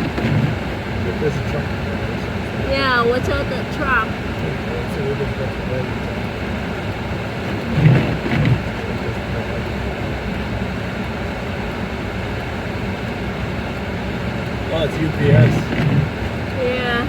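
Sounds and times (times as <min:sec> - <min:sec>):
loud bumps: 0:00.0 - 0:04.8, 0:05.7 - 0:10.1, 0:14.6 - 0:17.0
car road noise on snow: 0:00.0 - 0:17.0.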